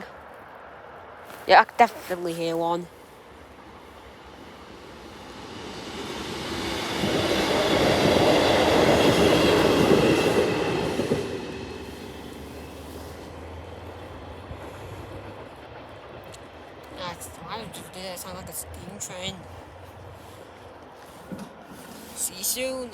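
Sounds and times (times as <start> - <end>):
train passing: 0.0 - 22.9.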